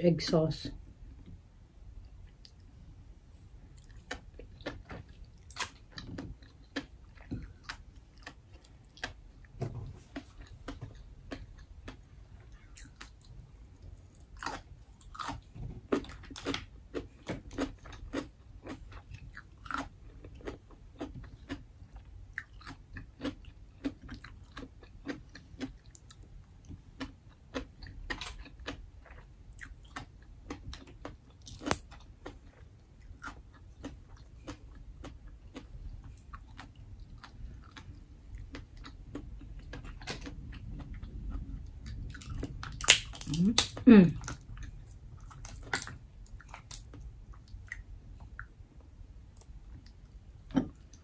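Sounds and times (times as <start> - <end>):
low room hum: 0.0 - 51.0
wet chewing with clicks: 2.0 - 2.8, 3.7 - 51.0.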